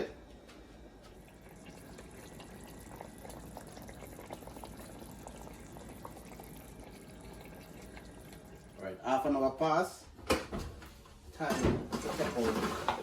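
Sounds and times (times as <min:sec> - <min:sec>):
pot of gravy simmering: 0:01.1 - 0:08.8.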